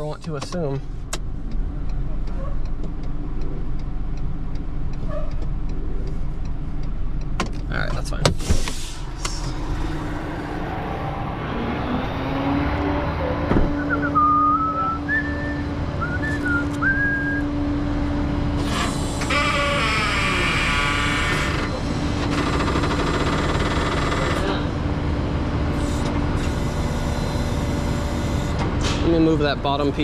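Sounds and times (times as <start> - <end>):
truck engine running: 0.0 - 19.4, 20.7 - 30.0
whistling squeaks: 13.7 - 17.5.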